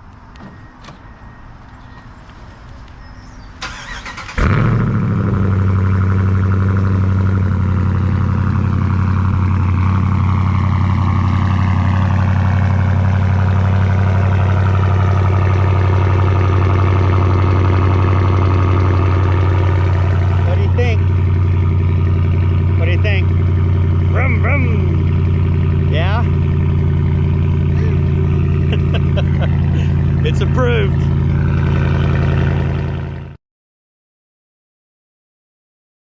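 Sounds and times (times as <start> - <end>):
engine starting with loud burst: 3.6 - 5.7
loud engine high idle: 3.6 - 33.3.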